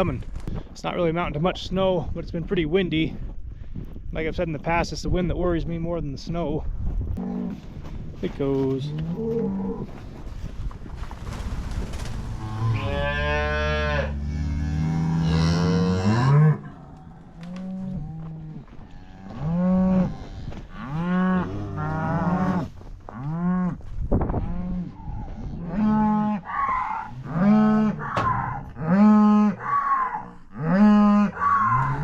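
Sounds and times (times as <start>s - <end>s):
cattle mooing: 12.2s - 23.4s.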